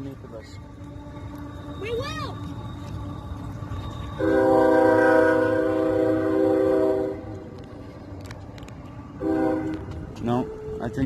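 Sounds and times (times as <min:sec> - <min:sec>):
low rumble of train: 0:00.0 - 0:11.0
train horn blasts: 0:04.2 - 0:07.6, 0:09.2 - 0:11.0.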